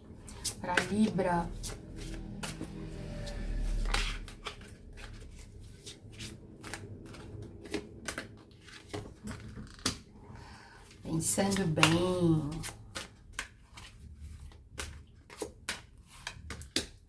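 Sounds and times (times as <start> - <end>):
cards being shuffled: 3.7 - 10.1, 11.3 - 17.0.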